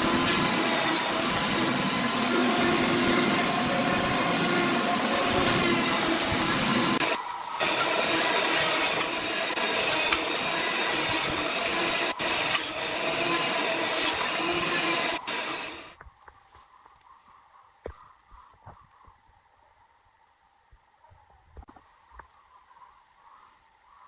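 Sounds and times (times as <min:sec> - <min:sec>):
power tool cutting wood: 0:00.0 - 0:16.0.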